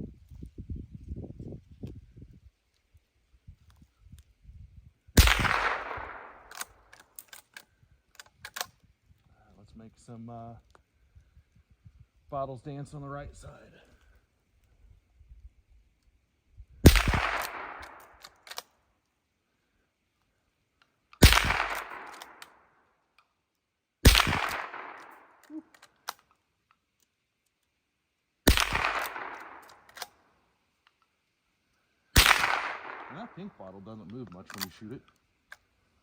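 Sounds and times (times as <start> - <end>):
rifle shots: 5.2 - 6.8, 16.8 - 18.6, 21.2 - 22.6, 24.0 - 25.4, 28.5 - 30.2, 32.2 - 33.6
rifle action clicks: 5.2 - 8.8, 16.9 - 18.7, 20.8 - 22.6, 24.1 - 27.7, 28.5 - 30.2, 32.2 - 33.1, 34.5 - 35.6.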